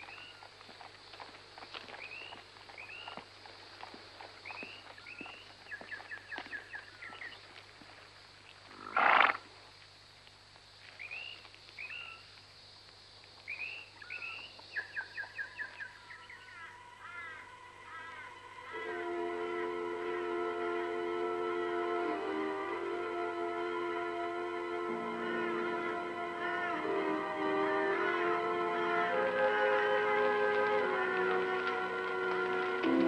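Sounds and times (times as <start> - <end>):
steady high hiss: 15.8 - 33.0
sustained music: 16.7 - 33.0.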